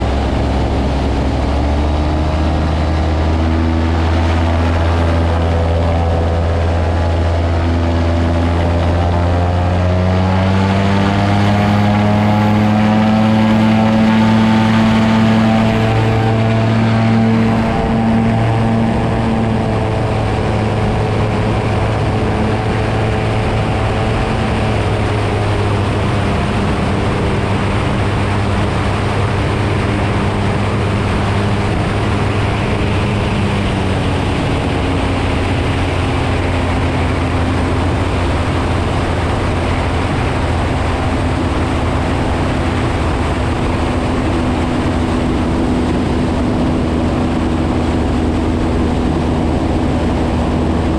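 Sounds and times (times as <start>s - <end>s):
broad rush of noise: 0.0s - 50.9s
seaplane engine droning: 0.0s - 50.9s.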